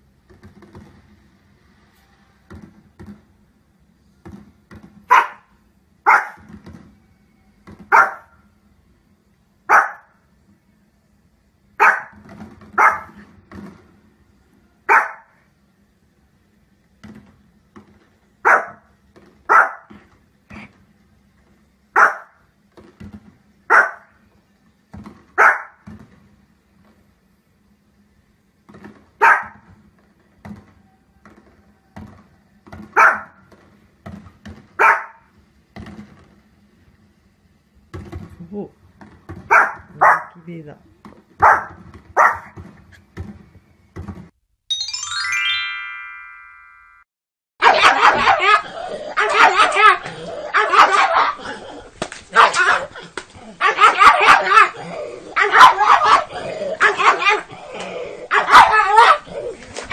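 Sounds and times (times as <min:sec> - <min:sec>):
small dog barking: 0:05.1 - 0:05.5, 0:06.1 - 0:06.5, 0:07.9 - 0:08.4, 0:09.7 - 0:10.1, 0:11.8 - 0:12.2, 0:12.8 - 0:13.2, 0:14.9 - 0:15.4, 0:18.4 - 0:18.8, 0:19.5 - 0:19.9, 0:22.0 - 0:22.4, 0:23.7 - 0:24.1, 0:25.4 - 0:25.8, 0:29.2 - 0:29.6, 0:33.0 - 0:33.4, 0:34.8 - 0:35.3, 0:39.5 - 0:40.4, 0:41.4 - 0:42.6, 0:47.6 - 0:51.5, 0:52.3 - 0:53.0, 0:53.6 - 0:57.6, 0:58.2 - 0:59.6.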